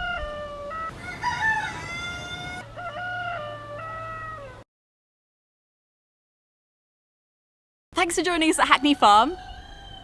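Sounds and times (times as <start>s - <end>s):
rooster crowing: 0.1s - 4.6s, 8.6s - 10.0s.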